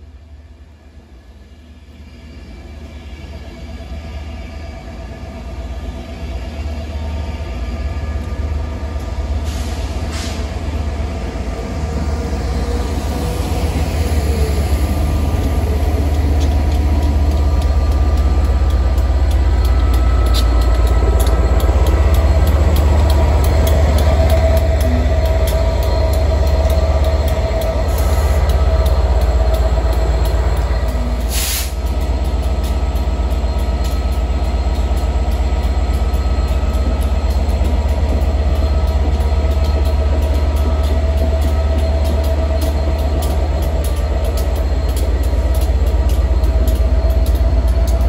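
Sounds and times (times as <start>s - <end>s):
train rumble: 0.0s - 48.0s.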